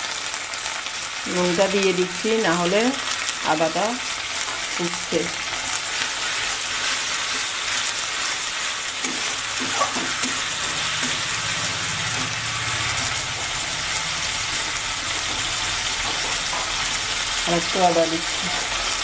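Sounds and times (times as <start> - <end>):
onions sizzling in hot oil: 0.0 - 19.0
steel spatula scraping a pan: 5.7 - 17.2.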